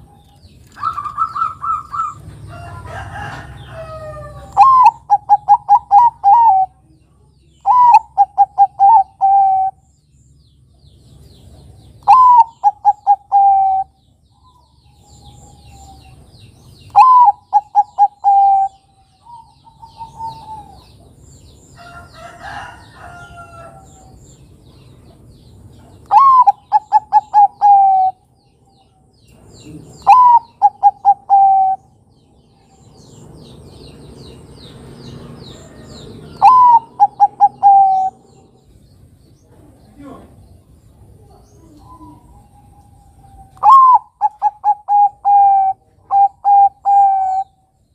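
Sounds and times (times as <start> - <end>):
dove cooing: 0.0 - 2.4, 3.1 - 6.8, 7.6 - 9.8, 12.0 - 16.2, 16.9 - 21.1, 26.0 - 28.2, 29.6 - 32.0, 35.7 - 38.6, 41.2 - 47.6.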